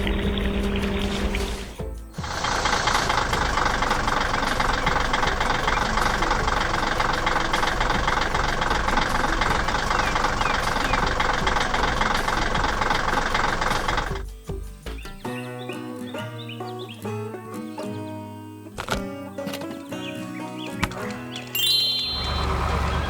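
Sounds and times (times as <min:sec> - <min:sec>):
vehicle engine running: 0:00.0 - 0:14.3, 0:22.0 - 0:23.0.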